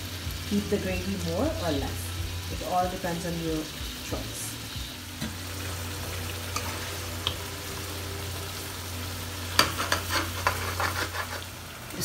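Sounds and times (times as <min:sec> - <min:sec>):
food sizzling in oil: 0:00.0 - 0:12.0
ladle scraping against pot: 0:09.6 - 0:11.5.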